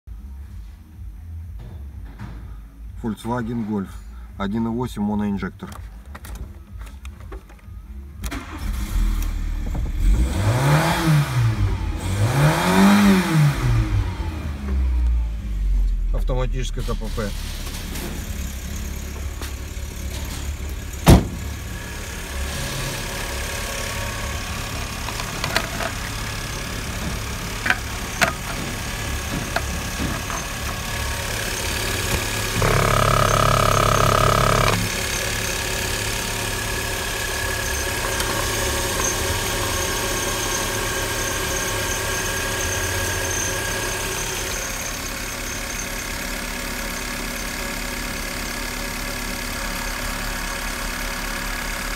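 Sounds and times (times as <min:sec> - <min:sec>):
car engine idling: 0:17.0 - 0:51.9.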